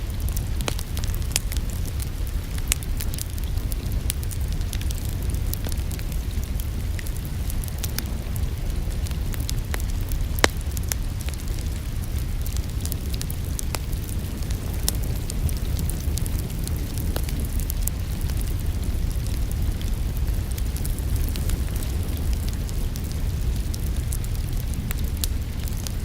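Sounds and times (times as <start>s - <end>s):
steady low rumble: 0.0s - 26.0s
wood fire crackling and popping: 0.0s - 26.0s.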